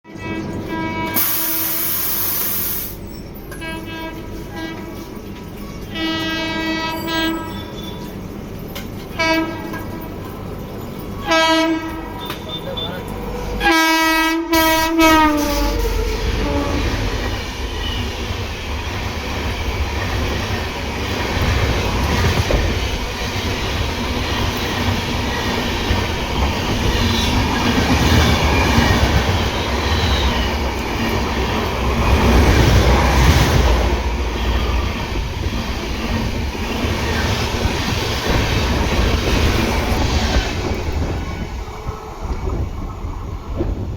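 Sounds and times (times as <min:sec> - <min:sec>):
train rumbling on track: 0:00.0 - 0:43.9
train horn blast: 0:00.1 - 0:02.2, 0:03.6 - 0:05.0, 0:05.9 - 0:07.7, 0:09.1 - 0:10.0, 0:11.2 - 0:17.2.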